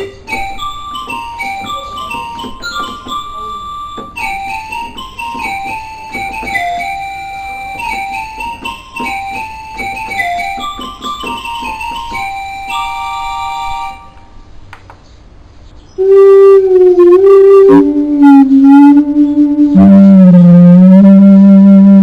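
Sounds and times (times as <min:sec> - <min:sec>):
keyboard melody in piano voice: 0:00.0 - 0:14.5
synth lead with pitch bending: 0:16.0 - 0:22.0.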